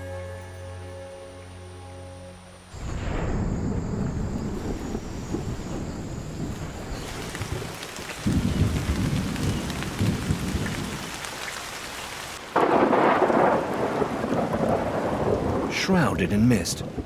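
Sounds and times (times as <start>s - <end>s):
heavy rain hissing: 2.7s - 17.0s
thunder rumbling: 2.8s - 11.3s, 12.4s - 17.0s.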